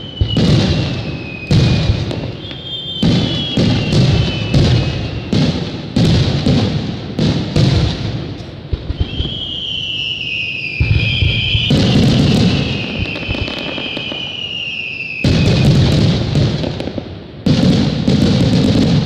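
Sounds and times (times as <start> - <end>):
long high whistle: 0.0 - 5.4, 8.9 - 15.9
firework shells bursting: 0.0 - 19.0.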